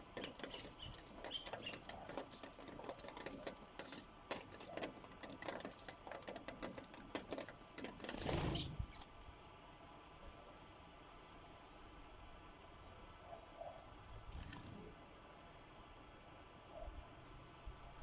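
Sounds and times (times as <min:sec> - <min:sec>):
beaks tapping on bird feeder: 0:00.0 - 0:09.0.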